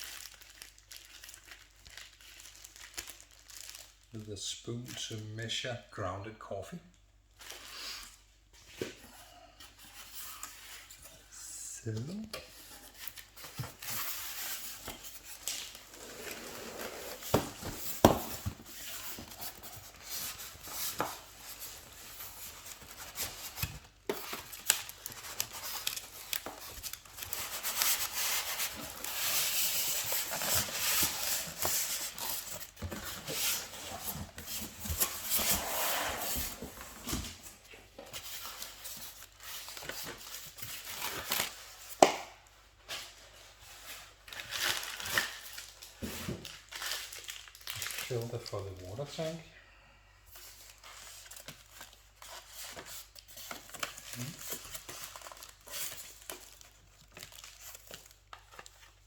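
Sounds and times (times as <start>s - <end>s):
plastic packaging crinkling: 0.0s - 4.3s, 12.6s - 35.7s, 44.1s - 49.4s, 50.6s - 59.0s.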